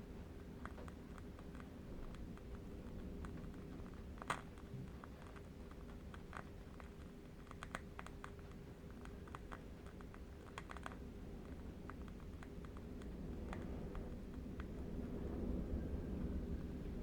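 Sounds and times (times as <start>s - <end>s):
low wind rumble: 0.0s - 17.0s.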